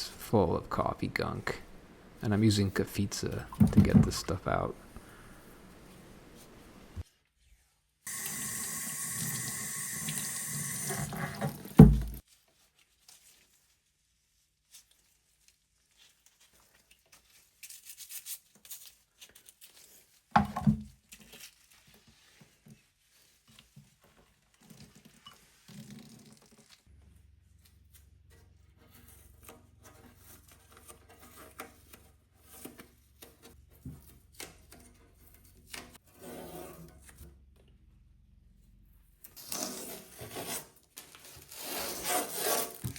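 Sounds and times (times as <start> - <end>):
tap water running into sink: 3.4 - 4.4, 8.1 - 12.2.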